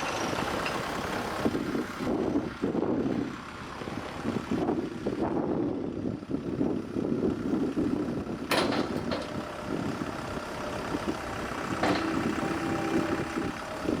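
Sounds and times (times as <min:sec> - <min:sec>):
tractor diesel engine idling: 0:00.0 - 0:14.0.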